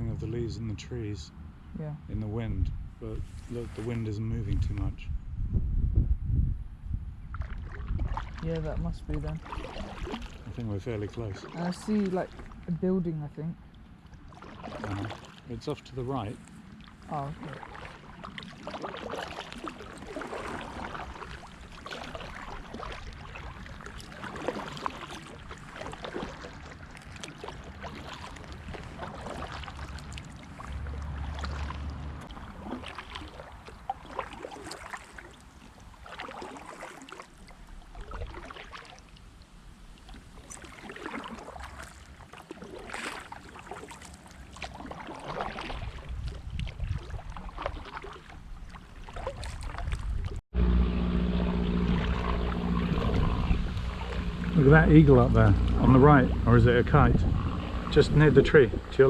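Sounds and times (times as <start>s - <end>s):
wind rumbling on microphone: 0.0s - 13.8s, 27.6s - 34.8s, 45.4s - 59.0s
kayak paddles splashing in water: 3.2s - 4.9s, 7.2s - 59.0s.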